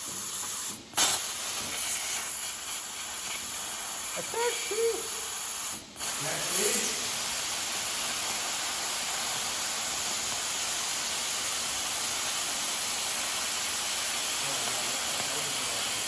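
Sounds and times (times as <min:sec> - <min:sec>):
plasma cutter cutting steel: 0:00.2 - 0:16.0.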